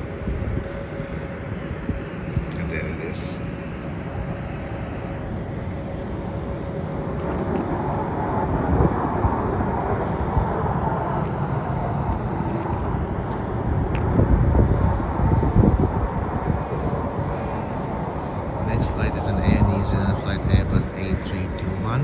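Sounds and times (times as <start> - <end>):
gusty low rumbles: 0.0 - 22.0
jet engine rushing: 0.0 - 22.0.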